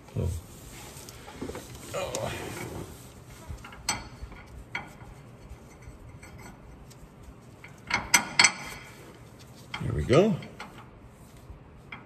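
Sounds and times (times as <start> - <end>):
metal bolts and wrench clinking: 7.6 - 8.9.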